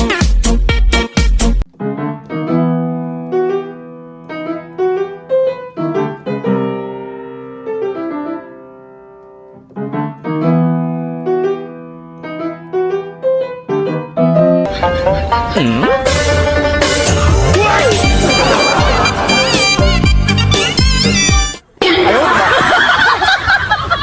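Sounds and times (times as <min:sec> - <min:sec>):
solo piano music: 0:01.6 - 0:16.6.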